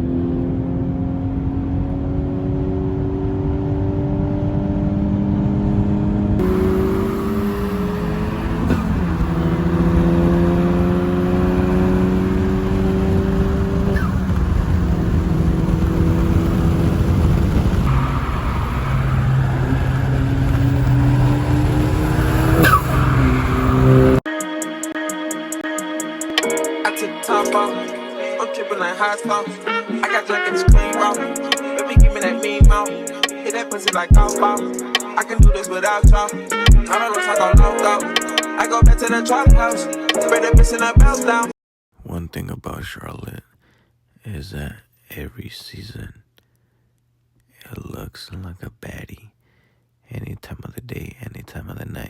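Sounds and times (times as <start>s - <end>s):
car engine accelerating: 0.0s - 24.2s.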